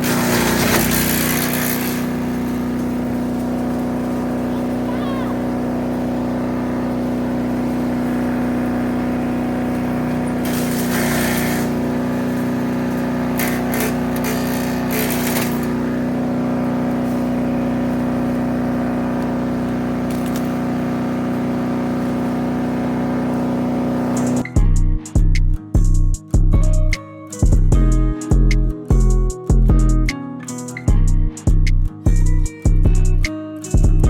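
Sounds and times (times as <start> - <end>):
harsh hissing of material chipped: 0.0 - 24.6
wood chipper engine running: 0.0 - 26.0.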